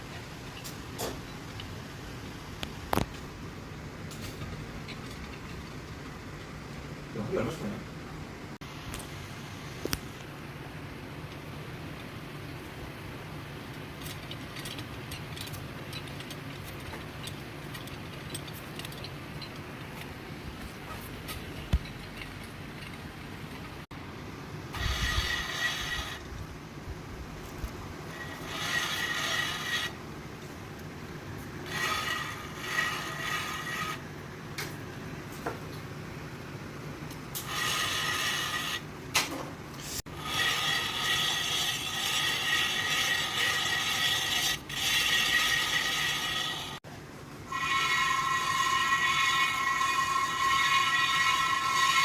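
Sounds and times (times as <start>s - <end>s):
mechanical scraping: 24.7s - 26.4s, 27.5s - 30.0s, 31.6s - 34.1s, 37.3s - 38.9s, 39.8s - 46.8s, 47.5s - 52.0s.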